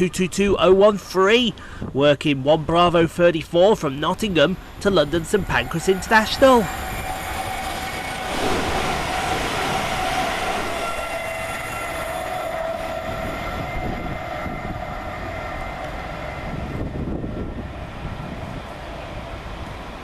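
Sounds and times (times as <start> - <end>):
train wheel and rail noise: 3.0 - 20.0
diesel engines: 3.4 - 20.0
steady tones: 4.0 - 18.1.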